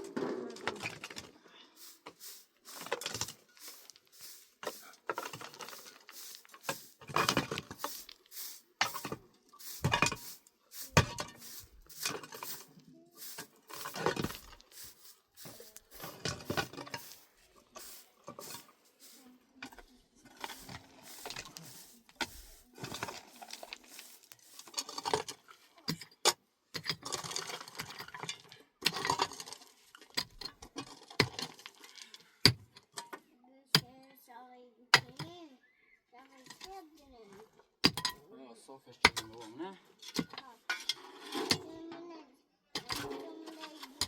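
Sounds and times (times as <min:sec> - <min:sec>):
hard objects knocking and clattering: 0:00.0 - 0:08.2, 0:08.8 - 0:18.8, 0:19.6 - 0:33.1.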